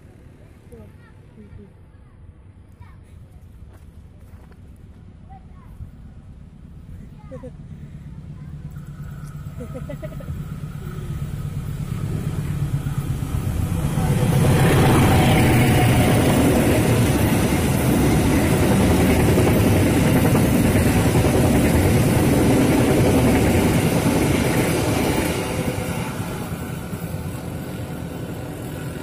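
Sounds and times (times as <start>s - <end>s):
train wheels rumbling on rails: 2.4s - 29.0s.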